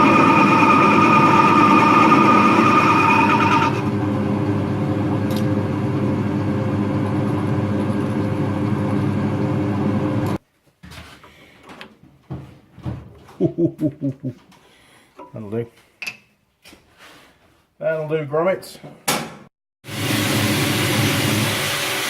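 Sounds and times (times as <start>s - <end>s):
machine motor running: 0.0s - 10.4s.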